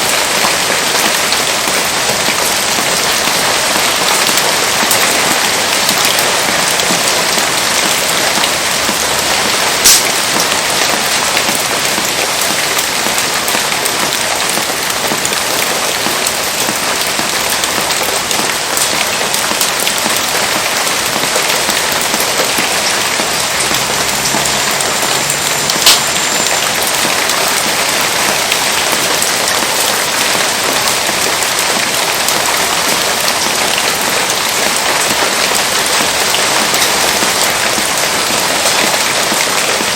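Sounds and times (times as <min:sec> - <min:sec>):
heavy rain hissing: 0:00.0 - 0:39.9
sharp pops: 0:09.8 - 0:10.2.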